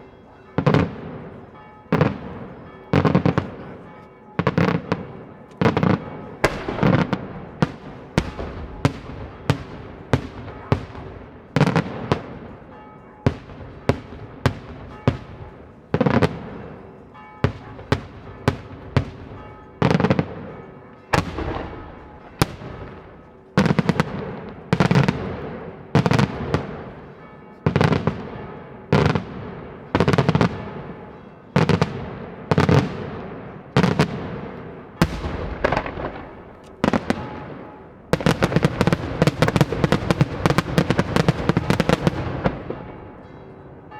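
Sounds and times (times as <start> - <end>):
firework shells bursting with echo: 5.7 - 12.3, 35.0 - 43.1.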